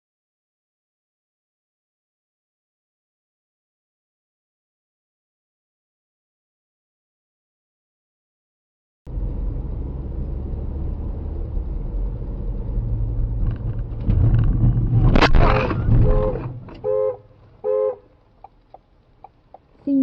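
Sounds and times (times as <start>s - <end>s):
car driving rumble: 9.1s - 20.0s
sharp impact bang: 13.8s - 17.2s.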